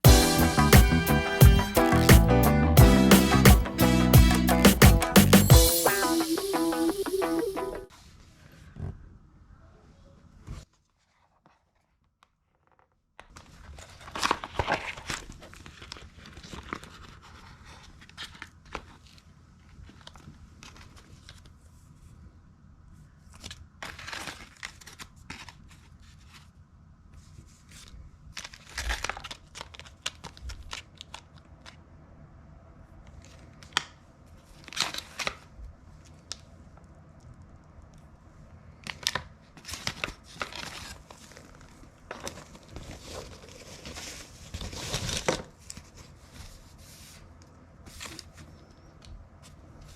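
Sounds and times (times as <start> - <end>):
packaging crinkling and tearing: 13.2 - 19.2, 23.4 - 25.8, 27.8 - 31.8, 33.2 - 36.5, 38.8 - 46.2.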